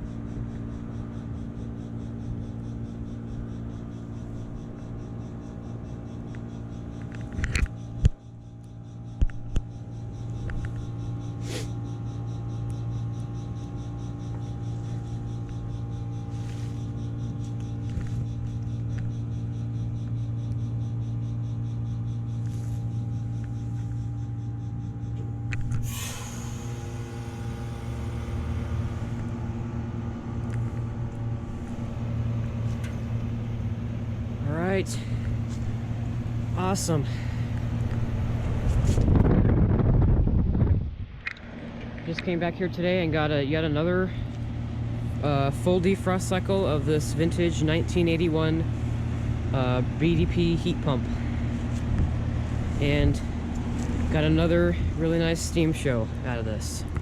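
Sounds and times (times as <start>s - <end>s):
heat pump compressor hum: 0.0s - 57.0s
loud hiss: 11.4s - 11.7s, 25.8s - 30.3s.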